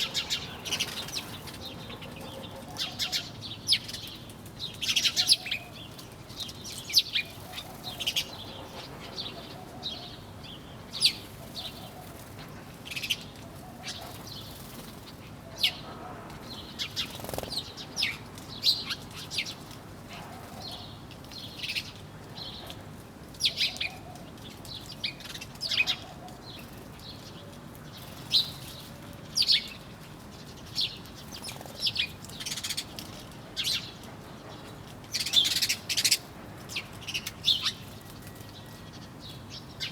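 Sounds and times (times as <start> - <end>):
small birds chirping: 0.0 - 13.2.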